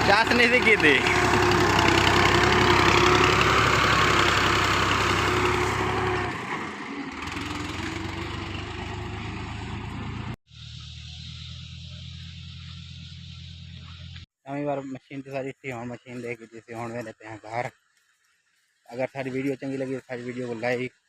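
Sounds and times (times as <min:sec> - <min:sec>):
quieter engine hum: 0:00.0 - 0:14.2
tractor engine running: 0:00.0 - 0:14.2.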